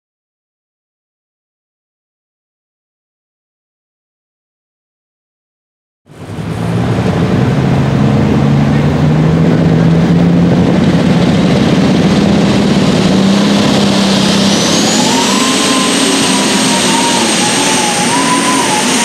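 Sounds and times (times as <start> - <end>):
tractor engine running hard: 6.1 - 19.0
turbocharger whine: 6.1 - 19.0.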